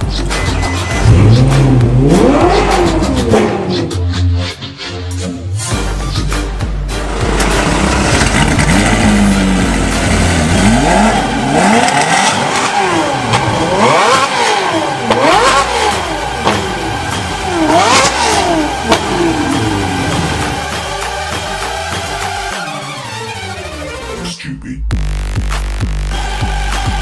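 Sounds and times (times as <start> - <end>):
sports car engine revving: 0.0 - 4.1, 7.0 - 22.4.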